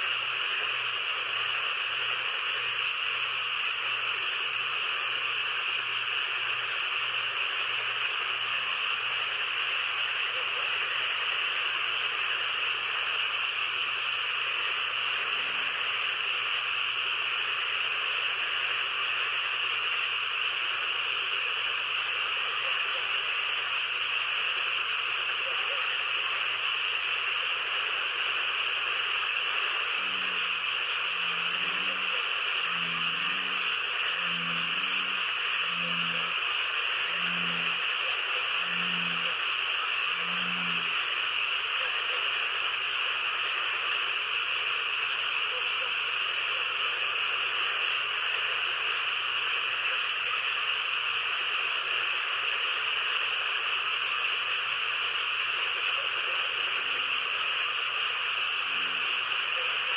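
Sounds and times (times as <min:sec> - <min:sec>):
chorus of calling animals: 0:25.3 - 0:26.5, 0:29.2 - 0:42.4.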